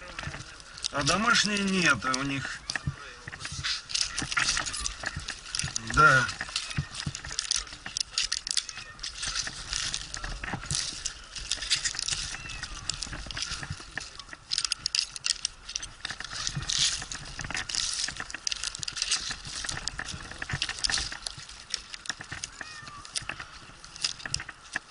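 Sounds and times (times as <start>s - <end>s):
microphone handling noise: 0.0s - 24.9s.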